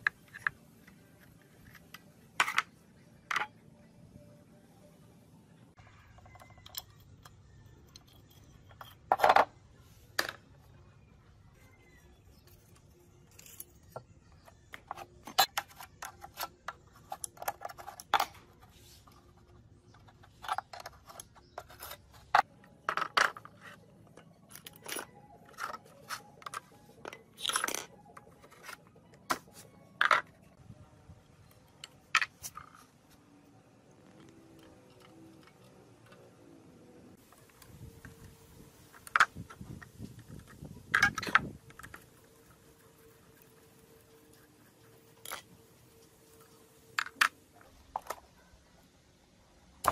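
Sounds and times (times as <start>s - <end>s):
metal tools clinking and clanking: 20.1s - 28.9s.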